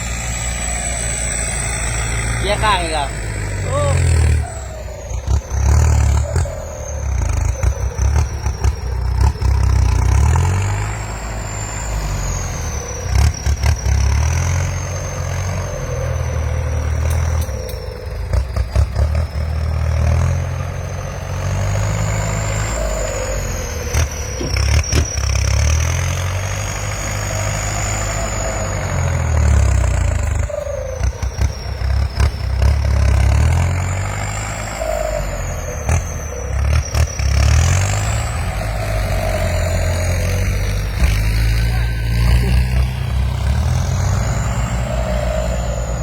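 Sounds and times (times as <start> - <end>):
tractor diesel engine working hard: 0.0 - 46.0
high whine: 34.4 - 46.0.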